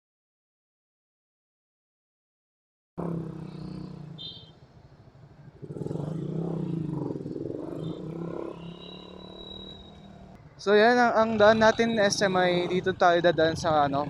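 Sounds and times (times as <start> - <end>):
motorcycle engine running: 5.6 - 10.4.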